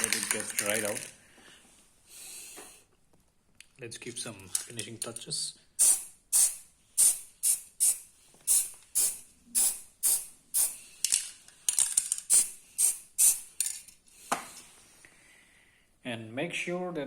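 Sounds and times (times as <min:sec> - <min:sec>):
spray paint can hissing: 0:05.8 - 0:10.8, 0:12.2 - 0:13.7.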